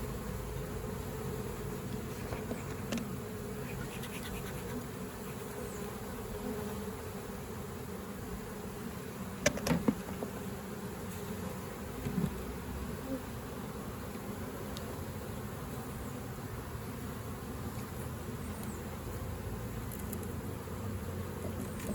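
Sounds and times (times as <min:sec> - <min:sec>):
honeybees buzzing: 0:00.0 - 0:21.9.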